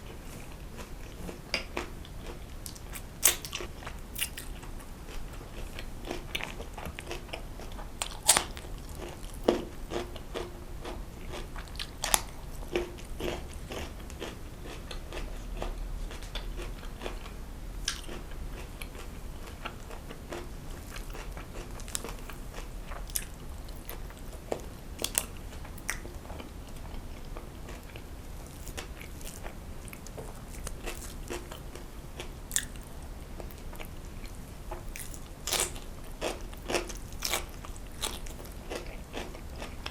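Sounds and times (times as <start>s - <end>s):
person chewing food: 0.1s - 39.9s.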